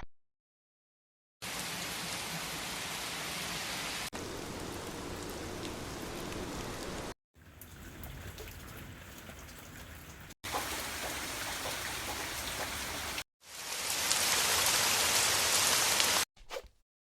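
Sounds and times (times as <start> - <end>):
steady rain-like hiss: 1.5 - 7.1.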